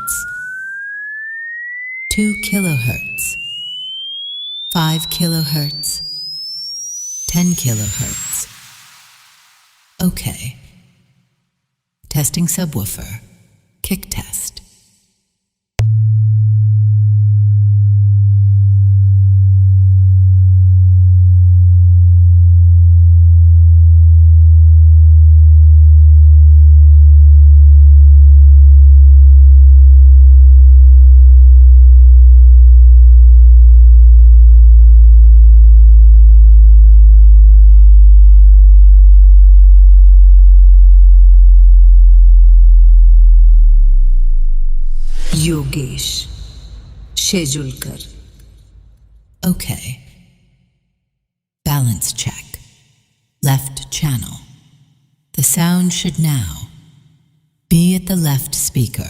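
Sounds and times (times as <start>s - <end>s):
deep pure tone gliding lower: 15.8s - 48.9s.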